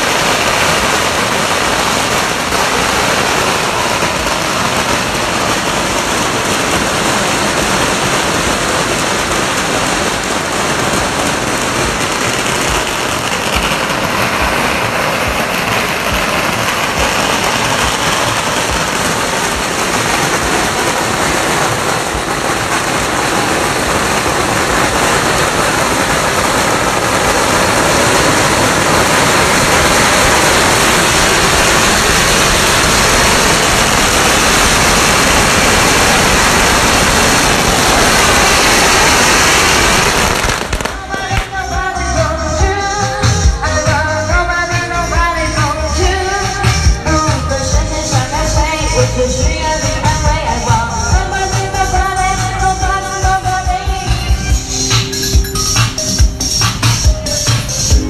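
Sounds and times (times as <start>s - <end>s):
firecrackers crackling: 0.0s - 58.0s.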